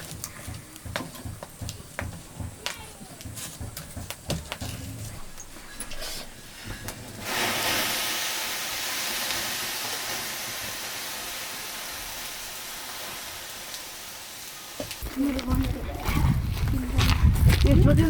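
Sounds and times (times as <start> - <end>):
hiss: 5.9 - 15.2.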